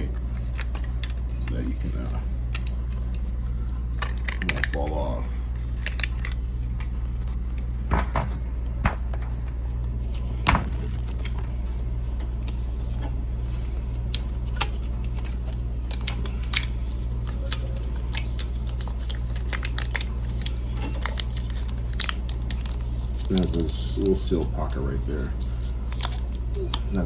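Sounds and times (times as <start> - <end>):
steady low hum: 0.0 - 27.0
metal foil tape crinkling: 14.0 - 27.0.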